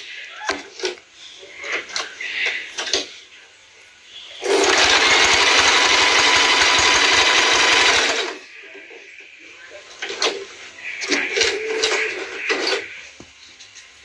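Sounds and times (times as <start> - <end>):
sewing machine stitching: 4.4 - 8.4.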